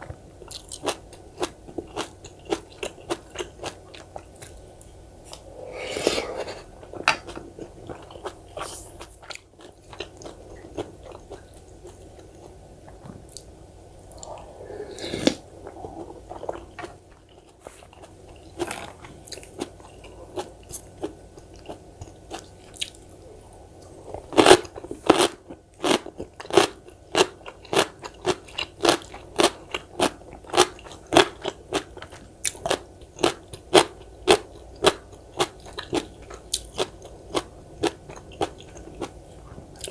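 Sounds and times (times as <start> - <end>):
soft mouth sounds: 5.2 - 7.1, 12.9 - 16.9.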